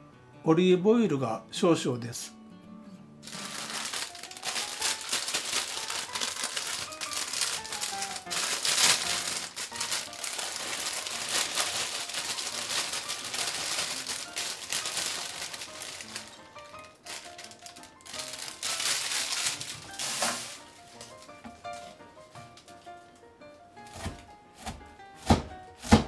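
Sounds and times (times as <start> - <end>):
quiet background music: 0.0 - 26.0
plastic packaging crinkling: 3.2 - 22.9.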